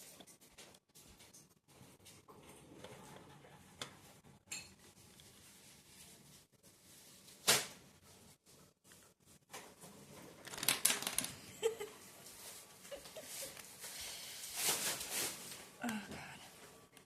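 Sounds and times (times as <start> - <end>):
rustling: 12.0 - 15.8.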